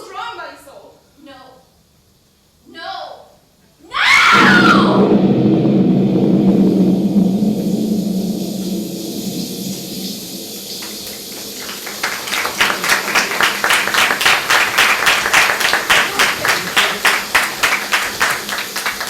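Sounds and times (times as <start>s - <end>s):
audience applauding: 10.7s - 19.0s.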